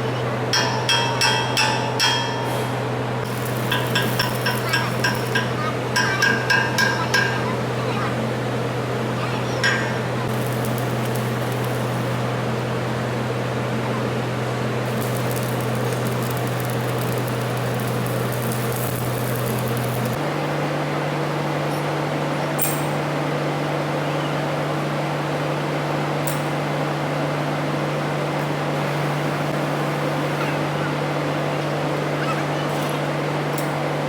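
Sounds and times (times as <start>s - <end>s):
machine humming: 0.0s - 20.3s.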